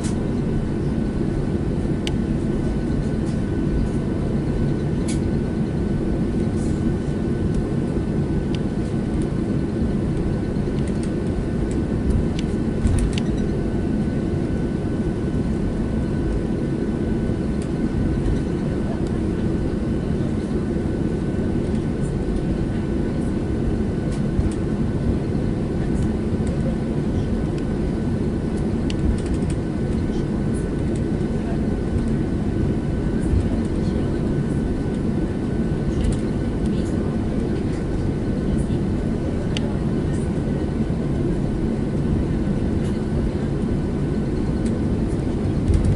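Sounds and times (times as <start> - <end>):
jet engine rumble and airflow: 0.0 - 45.9.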